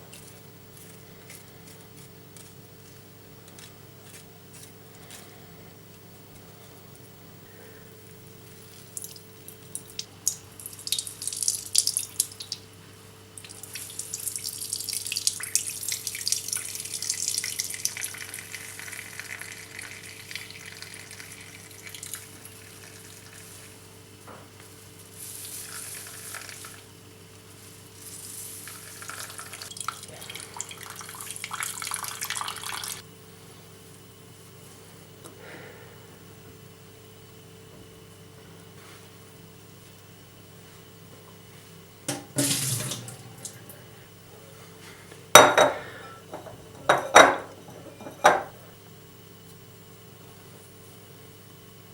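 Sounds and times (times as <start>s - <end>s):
faint steady hum: 0.0s - 51.9s
water running and splashing: 42.4s - 43.6s.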